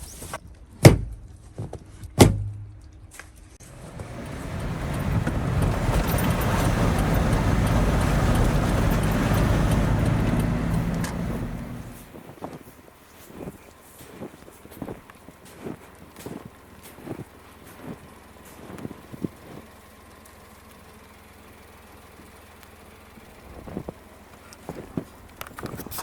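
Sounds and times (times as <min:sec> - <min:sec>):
vehicle passing by: 0:03.6 - 0:12.1.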